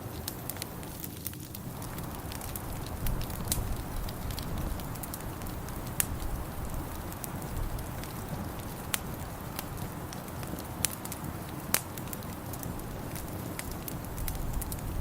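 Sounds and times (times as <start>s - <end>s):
wood fire crackling and popping: 0.0s - 15.0s
steady low rumble: 1.6s - 10.0s.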